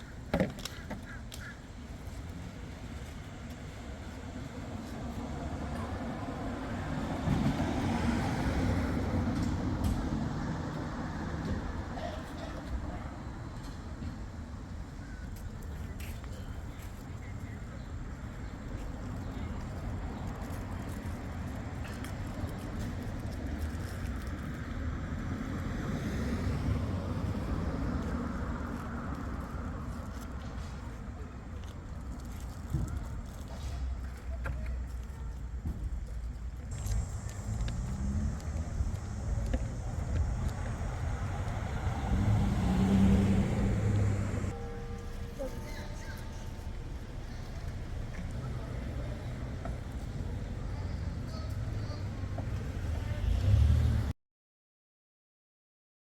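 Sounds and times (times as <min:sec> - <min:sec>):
vehicle driving past: 0:36.7 - 0:54.1.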